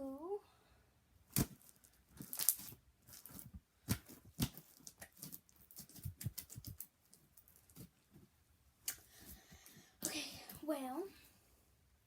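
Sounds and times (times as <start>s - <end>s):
hands squishing slime: 1.3s - 7.0s.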